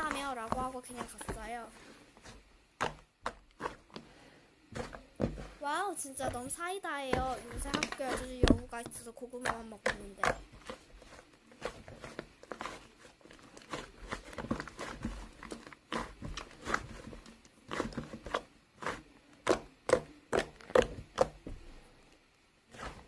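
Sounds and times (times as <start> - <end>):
sharp clicks and taps: 6.2 - 10.4.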